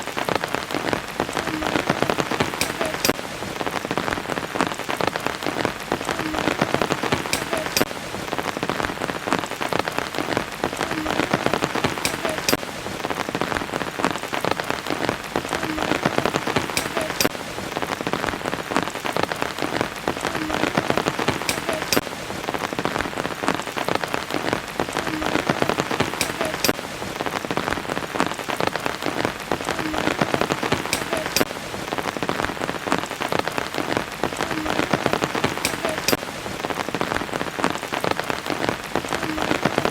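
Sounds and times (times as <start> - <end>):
raindrop hits: 0.0 - 39.9
steady rain: 0.0 - 39.9.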